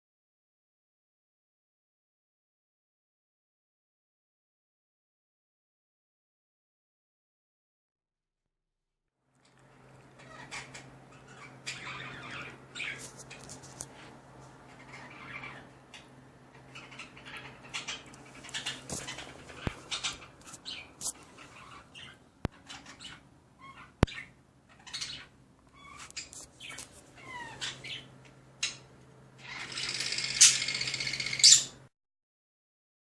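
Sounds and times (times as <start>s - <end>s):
faint steady hum: 9.3s - 31.9s
pet birds chirping and squawking: 9.6s - 31.8s.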